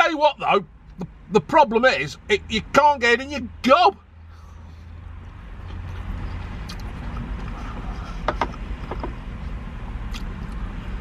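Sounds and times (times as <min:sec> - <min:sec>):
person chewing food: 0:05.6 - 0:08.6.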